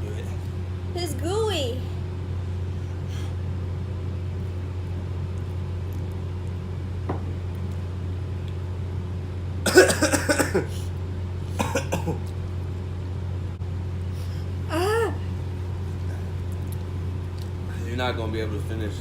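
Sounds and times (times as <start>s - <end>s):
steady low hum: 0.0s - 19.0s
person coughing: 9.7s - 10.9s, 11.5s - 12.2s.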